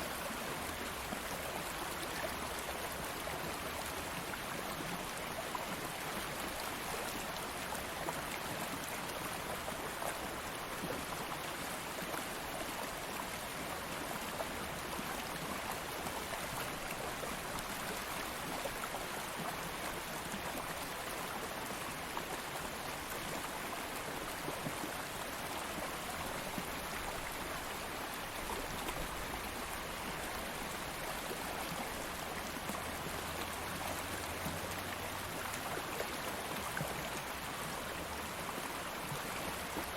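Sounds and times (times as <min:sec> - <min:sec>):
stream rushing and babbling: 0:00.0 - 0:39.9.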